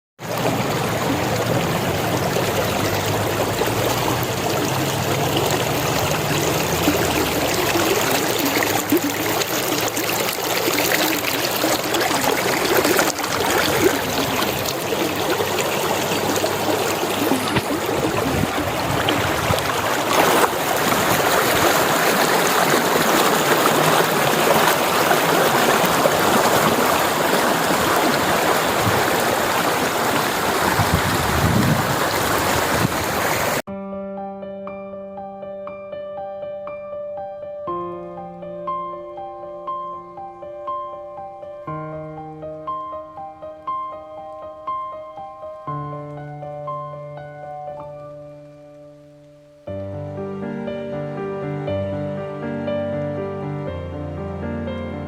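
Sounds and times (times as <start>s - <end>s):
stream water trickling: 0.2s - 33.6s.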